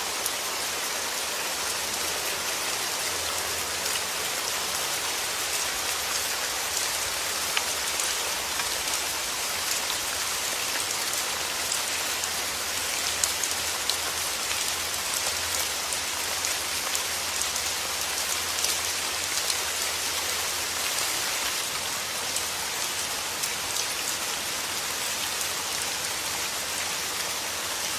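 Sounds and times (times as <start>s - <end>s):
soft rain falling: 0.0s - 27.9s.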